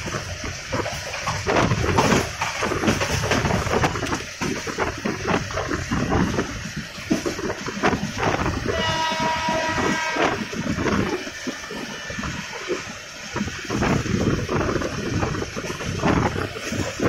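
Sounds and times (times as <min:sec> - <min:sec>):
train wheels rumbling on track: 0:00.0 - 0:17.0
wind noise: 0:00.0 - 0:17.0
train horn: 0:08.6 - 0:10.8.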